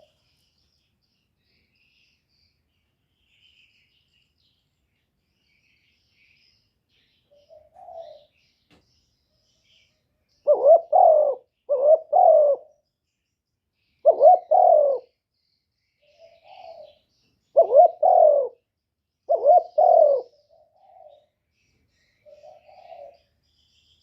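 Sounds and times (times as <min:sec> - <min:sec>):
dove cooing: 0:07.3 - 0:08.3, 0:10.5 - 0:12.8, 0:14.0 - 0:15.1, 0:16.1 - 0:18.6, 0:19.3 - 0:21.3, 0:22.2 - 0:23.3.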